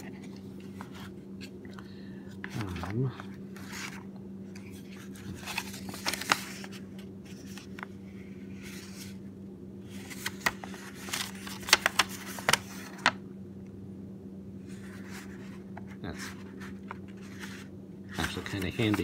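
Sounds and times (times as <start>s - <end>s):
steady low hum: 0.0s - 19.0s
paper packaging rustling: 2.4s - 7.9s, 9.9s - 13.2s, 14.7s - 19.0s.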